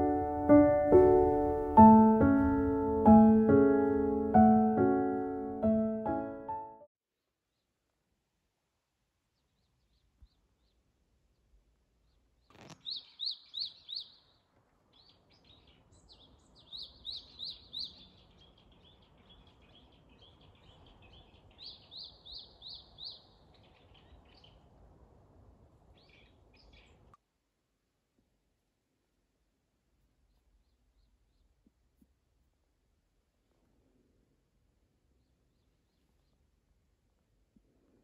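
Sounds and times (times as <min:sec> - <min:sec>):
faint outdoor hiss: 0:07.1 - 0:38.0
songbird chirping: 0:09.2 - 0:25.0, 0:25.6 - 0:27.2, 0:29.9 - 0:32.6, 0:34.8 - 0:37.4.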